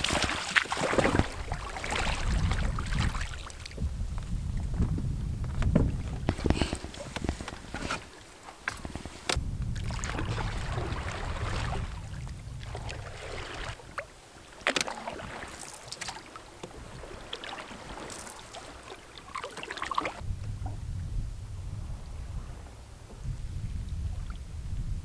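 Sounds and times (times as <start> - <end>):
wind buffeting microphone: 0.0 - 14.1, 20.2 - 25.0
paddle splashing: 0.0 - 20.2.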